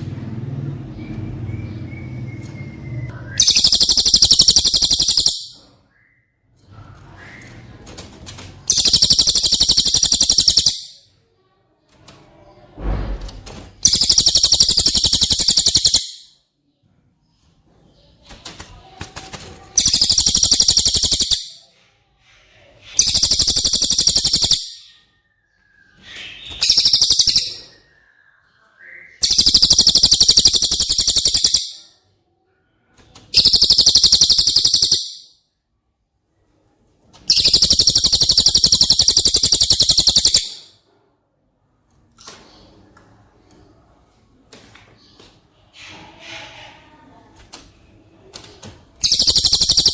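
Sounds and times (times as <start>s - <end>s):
songbird high-pitched trill: 1.6s - 5.6s, 8.7s - 11.0s, 13.9s - 16.3s, 19.8s - 21.6s, 23.0s - 24.9s, 26.5s - 27.8s, 29.2s - 31.9s, 33.4s - 35.3s, 37.3s - 40.7s, 49.0s - 49.9s.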